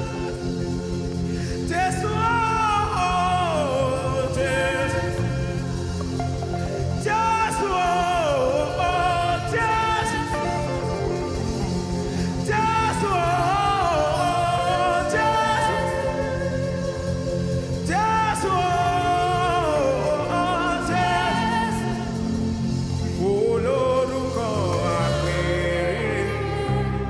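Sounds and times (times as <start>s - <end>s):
bass notes: 0.0s - 27.0s
drums: 0.0s - 27.0s
person singing vocal runs: 0.0s - 27.0s
sustained keyboard chords: 0.0s - 27.0s.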